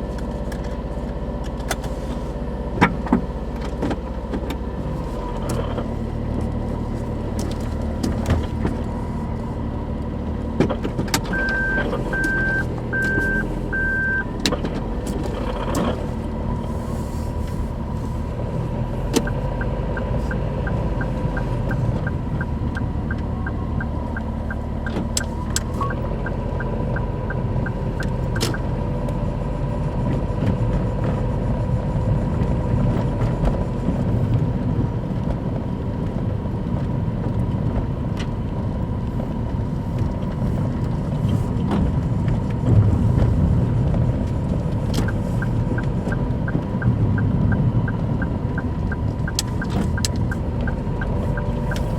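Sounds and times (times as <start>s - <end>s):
car engine rumbling: 0.0s - 51.9s
regular ticking: 19.1s - 28.8s, 44.7s - 51.9s.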